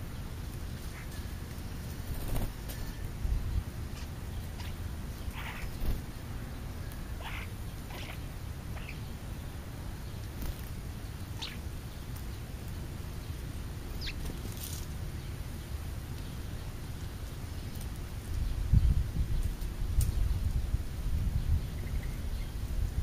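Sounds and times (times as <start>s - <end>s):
bird chirps and calls: 3.9s - 9.2s, 11.3s - 12.0s, 13.9s - 14.3s.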